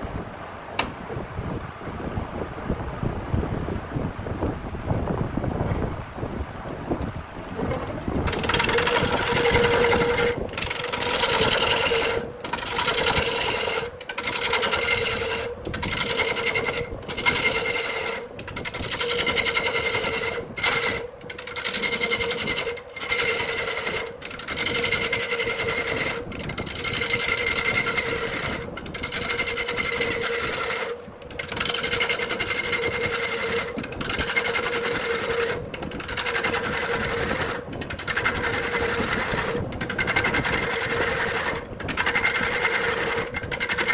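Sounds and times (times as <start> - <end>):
lathe motor hum: 5.8 - 43.9
cutting tool scraping spinning wood: 6.8 - 43.9.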